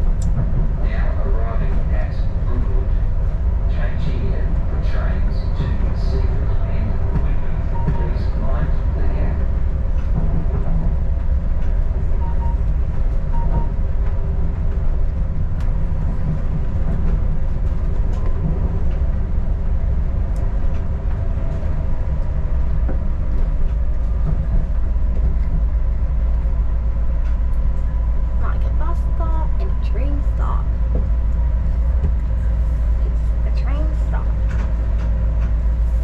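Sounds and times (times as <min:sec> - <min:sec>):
diesel railcar rumbling on track: 0:00.0 - 0:36.0
faint clicks from rails: 0:09.9 - 0:28.1, 0:34.2 - 0:36.0.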